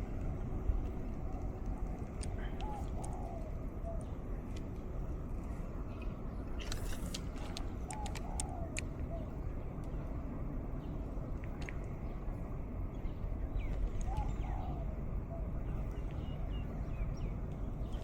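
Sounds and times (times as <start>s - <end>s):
wind rumbling on microphone: 0.0s - 18.0s
bird calling: 13.6s - 15.5s.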